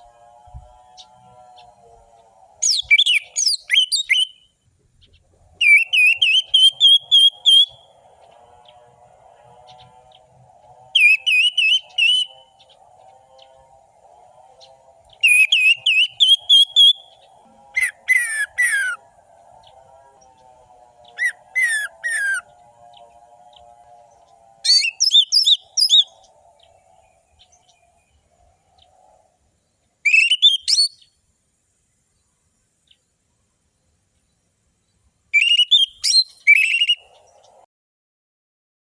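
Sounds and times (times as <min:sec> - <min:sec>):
thrush singing whistled notes: 0:00.0 - 0:04.6, 0:05.6 - 0:08.8, 0:10.9 - 0:13.6, 0:14.5 - 0:22.7, 0:23.5 - 0:28.3, 0:30.0 - 0:31.2, 0:35.3 - 0:37.3.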